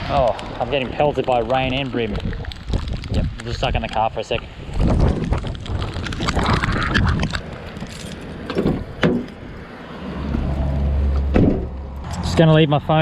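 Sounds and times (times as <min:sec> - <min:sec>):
rain: 0:00.0 - 0:08.6
wind: 0:00.0 - 0:13.0.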